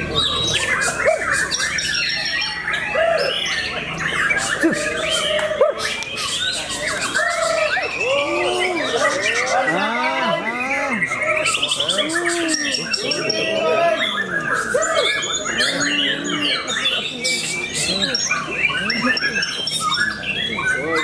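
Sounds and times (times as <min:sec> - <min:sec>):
songbirds singing in chorus: 0:00.0 - 0:21.0.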